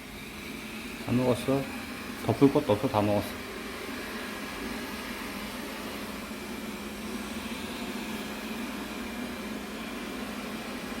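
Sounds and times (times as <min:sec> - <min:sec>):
robot vacuum cleaner humming: 0:00.0 - 0:11.0.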